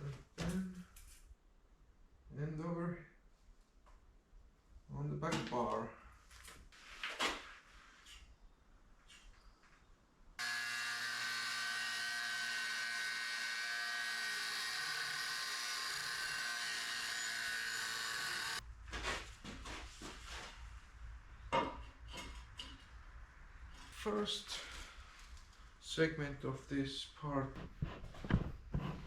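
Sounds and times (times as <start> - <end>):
power tool whining: 10.4 - 18.6.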